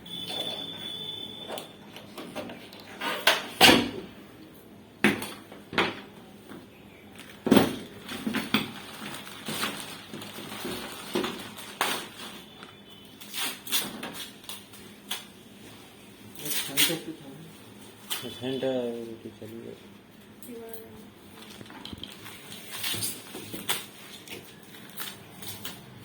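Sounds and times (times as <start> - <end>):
hard objects knocking and clattering: 5.0 - 11.6, 21.4 - 22.2.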